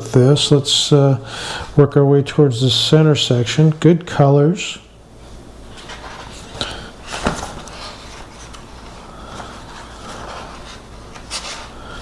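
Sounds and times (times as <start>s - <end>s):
paper pages rustling: 5.7s - 11.8s
paper crackles: 5.7s - 11.9s.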